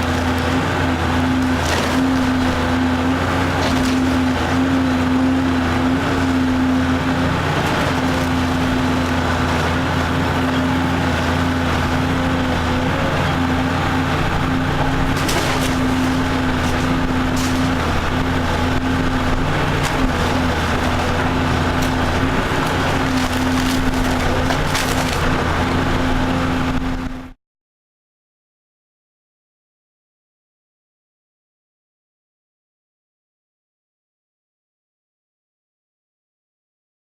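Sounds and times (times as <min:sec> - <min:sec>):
excavator diesel engine under load: 0:00.0 - 0:27.4
wood breaking with sharp cracks: 0:01.4 - 0:02.5, 0:03.6 - 0:04.3, 0:14.9 - 0:18.0, 0:19.4 - 0:25.4.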